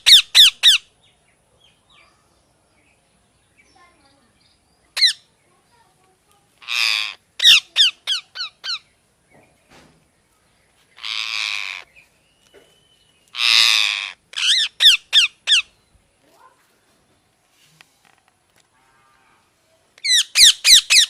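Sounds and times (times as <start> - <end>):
parrot squawking and shrieking: 0.0 - 0.8, 5.0 - 5.2, 6.6 - 8.8, 11.0 - 11.9, 13.3 - 15.7, 20.0 - 21.0.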